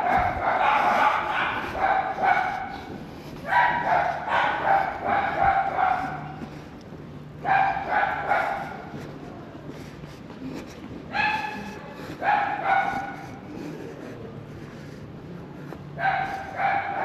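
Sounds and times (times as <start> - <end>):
dog barking: 0.0 - 6.4, 7.4 - 9.0, 11.1 - 13.6, 16.0 - 17.0.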